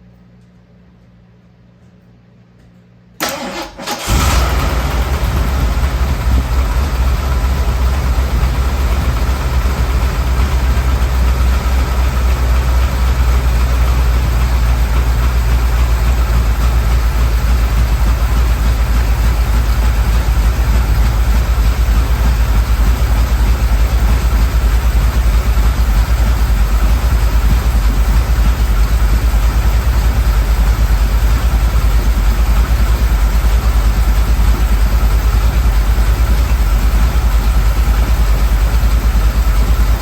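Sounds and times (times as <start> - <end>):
engine starter cranking: 3.2 - 8.2
car engine idling: 3.3 - 40.0.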